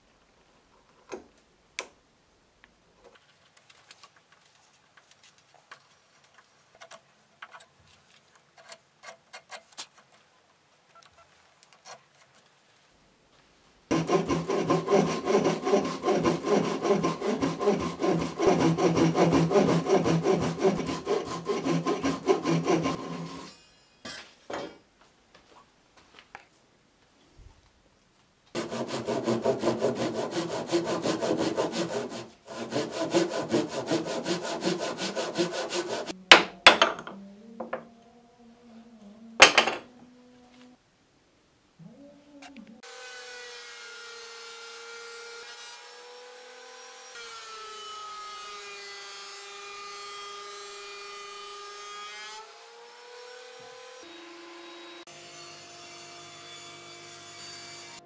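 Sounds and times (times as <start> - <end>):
hand saw cutting hardwood: 13.9 - 23.6, 28.6 - 36.2.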